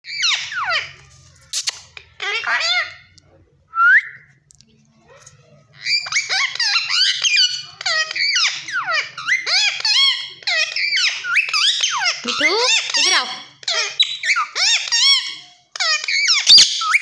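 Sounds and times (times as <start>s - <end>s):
parrot chattering and squawking: 0.1s - 3.2s, 5.2s - 17.0s.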